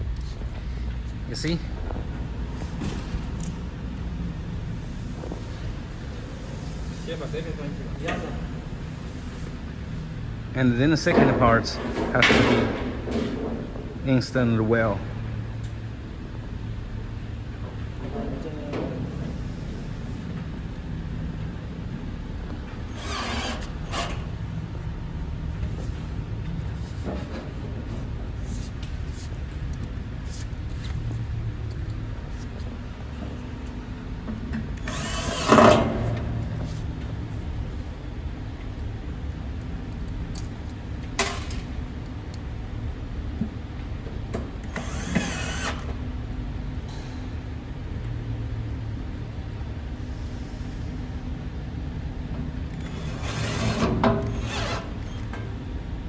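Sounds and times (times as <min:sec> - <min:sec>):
low background hum: 0:00.0 - 0:56.0
power drill driving screws: 0:22.9 - 0:24.4, 0:34.8 - 0:36.0, 0:44.6 - 0:46.0, 0:52.8 - 0:55.3.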